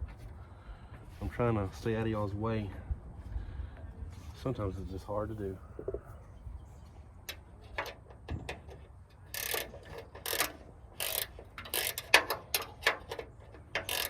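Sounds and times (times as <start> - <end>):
ratchet wrench clicking: 9.3 - 14.0.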